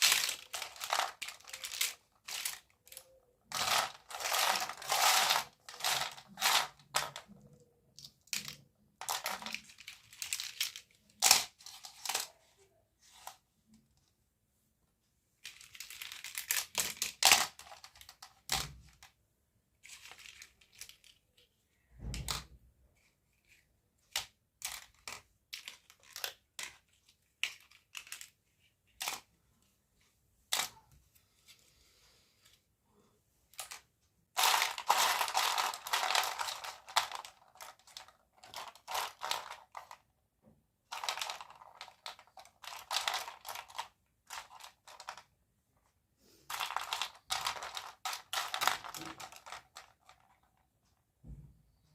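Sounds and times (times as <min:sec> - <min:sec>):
plastic packaging rustling: 0:00.0 - 0:07.2, 0:34.4 - 0:40.0
plastic toy pieces clicking: 0:00.0 - 0:12.3, 0:15.4 - 0:19.1, 0:19.8 - 0:21.5, 0:23.0 - 0:29.3, 0:34.4 - 0:40.0, 0:40.9 - 0:45.3, 0:46.5 - 0:50.4.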